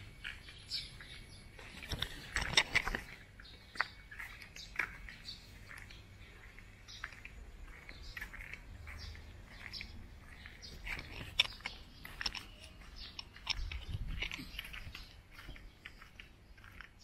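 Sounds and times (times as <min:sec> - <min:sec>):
small birds chirping: 0:00.0 - 0:17.0
crunching clicks: 0:01.6 - 0:05.9, 0:09.6 - 0:17.0.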